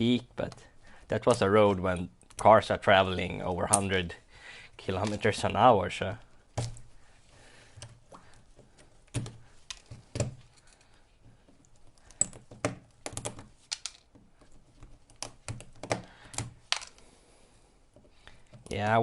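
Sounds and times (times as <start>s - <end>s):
hard parts clicking on a workbench: 8.7s - 17.0s.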